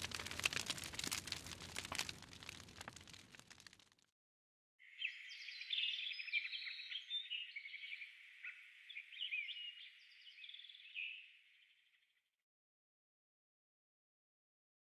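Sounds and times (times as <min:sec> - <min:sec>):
birds chirping and trilling: 0:04.9 - 0:12.0.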